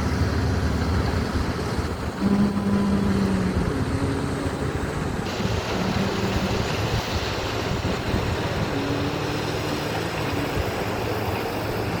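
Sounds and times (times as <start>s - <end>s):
engine humming: 0.0s - 12.0s
dense rushing noise: 2.8s - 12.0s.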